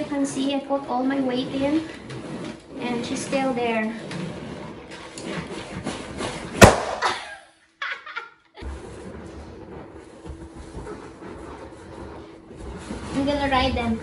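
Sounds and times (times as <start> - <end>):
balloon bursting: 4.2 - 7.4
woman laughing: 7.0 - 8.6.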